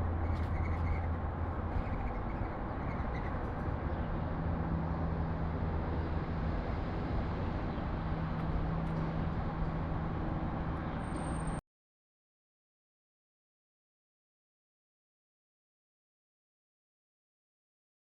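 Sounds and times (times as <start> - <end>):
road traffic noise: 0.0 - 11.6.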